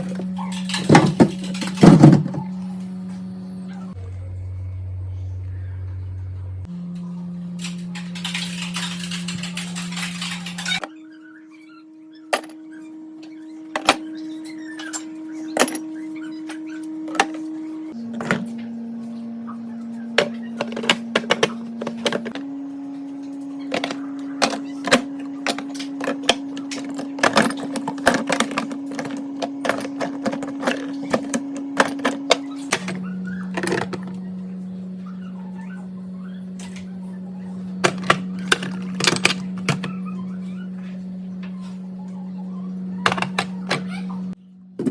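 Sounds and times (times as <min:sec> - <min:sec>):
household items clicking and knocking: 0:00.0 - 0:02.4
steady hum: 0:12.0 - 0:44.9.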